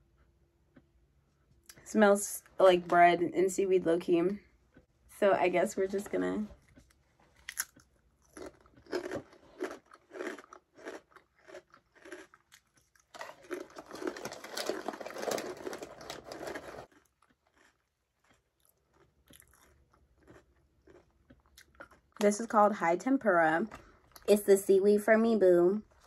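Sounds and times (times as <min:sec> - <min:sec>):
crunching crispy snack: 0:07.4 - 0:22.1.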